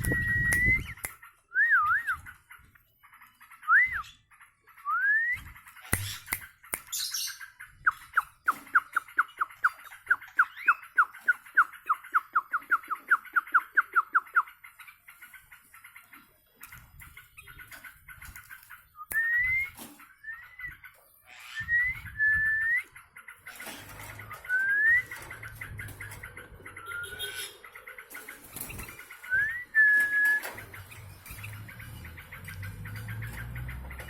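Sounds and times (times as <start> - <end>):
bird whistled notes: 0.0 - 2.2, 19.0 - 20.7, 21.4 - 23.0, 24.5 - 25.2, 26.8 - 27.6, 29.3 - 30.6.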